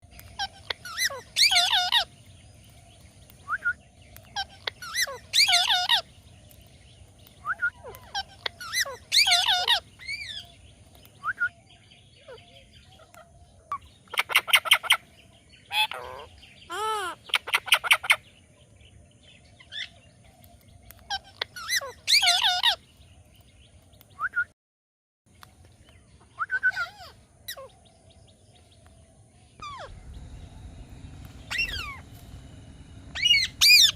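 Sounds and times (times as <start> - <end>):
parakeet screeching: 0.3 - 2.2, 4.4 - 6.1, 7.4 - 10.5, 15.7 - 18.2, 21.1 - 22.8, 29.6 - 30.1, 31.5 - 32.0, 33.1 - 33.9
rapid repeated bird notes: 28.2 - 33.9.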